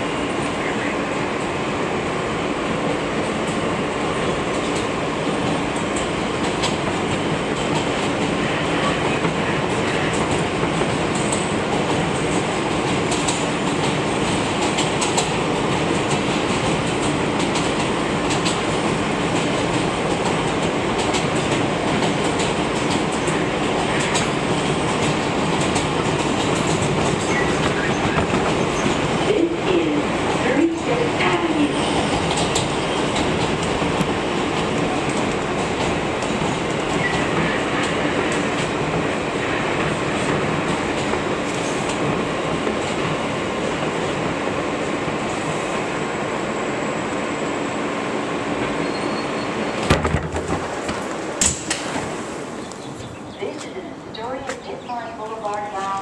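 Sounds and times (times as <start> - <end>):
train wheels rumbling on rail: 0.0 - 56.0
sharp clicks over rail joints: 49.9 - 52.0.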